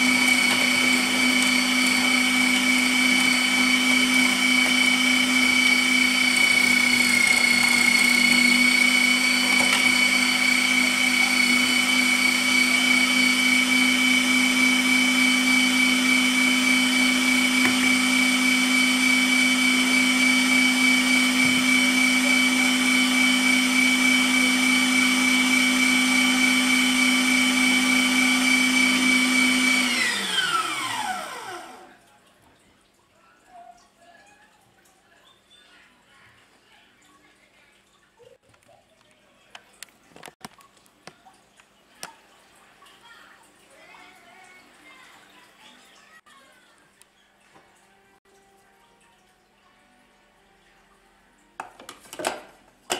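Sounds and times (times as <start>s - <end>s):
electric meat mincer motor whine: 0.0s - 31.9s.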